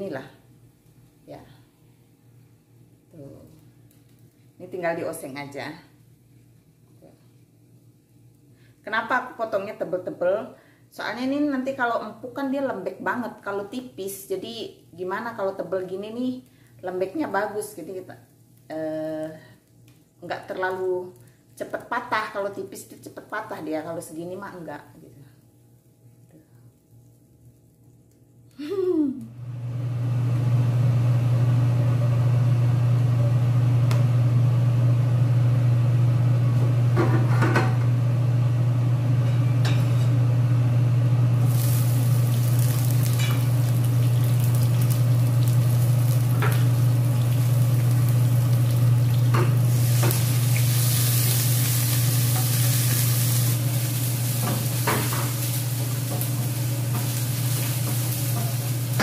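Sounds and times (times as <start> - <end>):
shallots sizzling in oil: 38.2 - 59.0.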